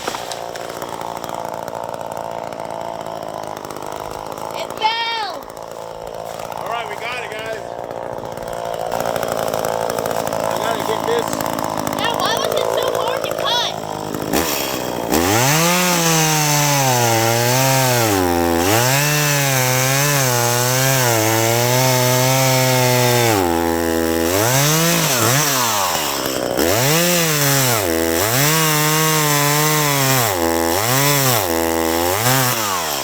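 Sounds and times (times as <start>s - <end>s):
chainsaw revving and cutting wood: 0.0s - 33.0s
person speaking: 6.5s - 7.7s, 10.4s - 13.8s.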